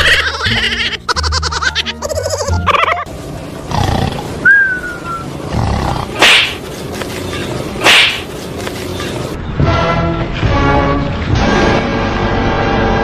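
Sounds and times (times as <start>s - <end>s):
animal harsh cries: 0.0s - 3.1s
animal whistle-like call: 4.5s - 5.3s.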